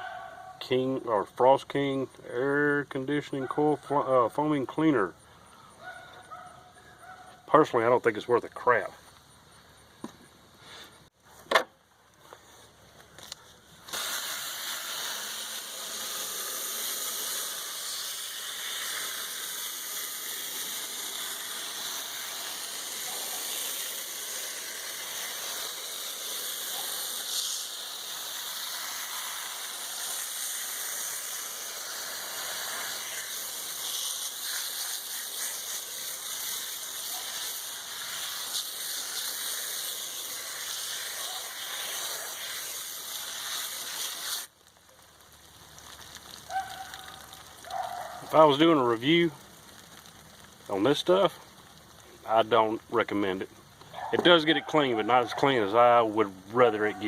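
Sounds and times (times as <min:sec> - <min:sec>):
hose water spraying on metal fins: 0:13.8 - 0:53.5.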